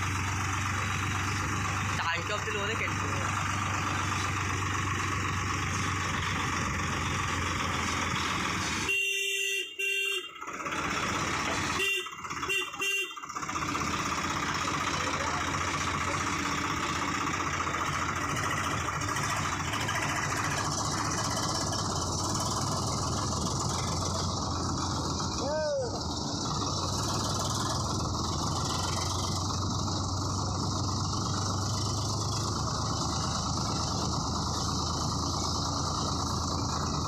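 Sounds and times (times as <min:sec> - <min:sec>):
tractor diesel engine running: 0:00.0 - 0:37.0
horn blasts and toots: 0:08.7 - 0:10.5, 0:11.6 - 0:13.4.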